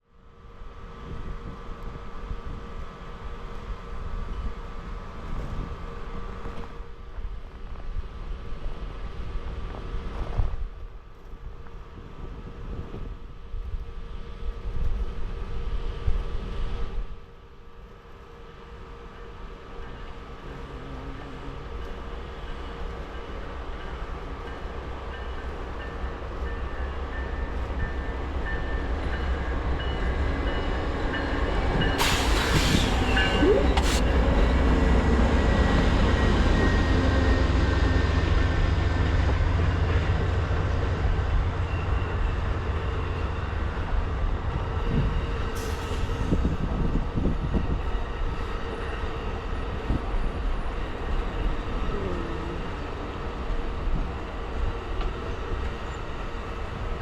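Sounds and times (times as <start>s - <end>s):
train rumbling: 0.0s - 57.0s
brief hisses: 32.0s - 34.2s.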